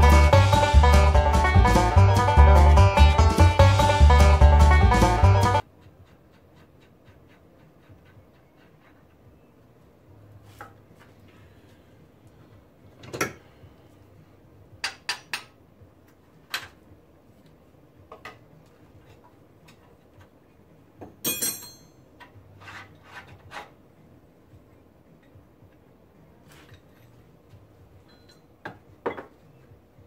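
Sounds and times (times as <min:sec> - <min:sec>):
metal tools clanking: 0:21.2 - 0:22.0
ringing metal clatter: 0:21.2 - 0:22.0.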